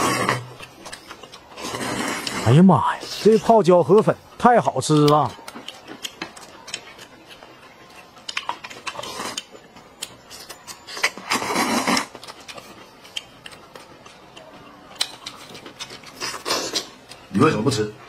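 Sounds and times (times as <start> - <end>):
slurping noodles: 0.0 - 0.8, 1.4 - 3.4, 8.8 - 9.5, 10.9 - 12.2.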